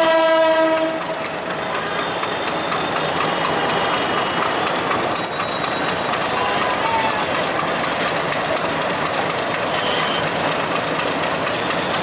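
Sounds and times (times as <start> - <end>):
train horn: 0.0 - 2.3, 9.8 - 10.3
passenger train running: 0.0 - 12.0.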